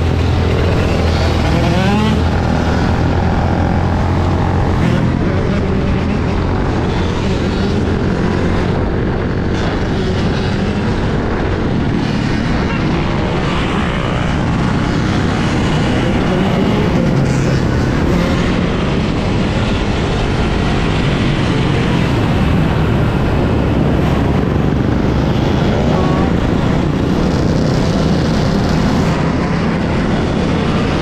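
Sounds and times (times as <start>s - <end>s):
road and tyre noise: 0.0s - 31.0s
wind buffeting microphone: 14.1s - 31.0s.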